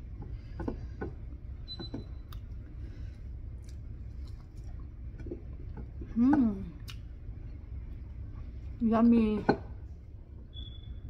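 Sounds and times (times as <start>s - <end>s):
steady low hum: 0.0s - 11.0s
person chewing: 3.4s - 5.8s.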